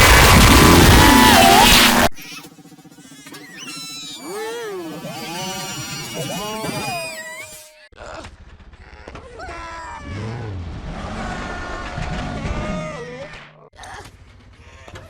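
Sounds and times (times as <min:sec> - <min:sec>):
pitch-shifted cartoon voice: 0:01.2 - 0:08.2.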